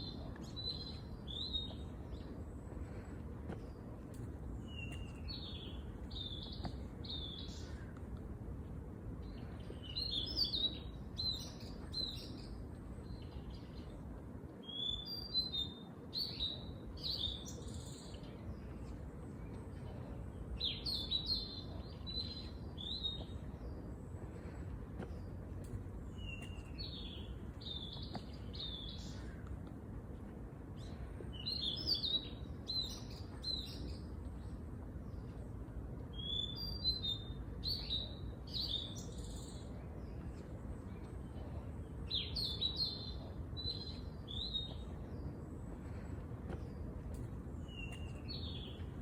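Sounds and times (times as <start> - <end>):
low background noise: 0.0 - 49.0
songbird singing: 0.0 - 49.0.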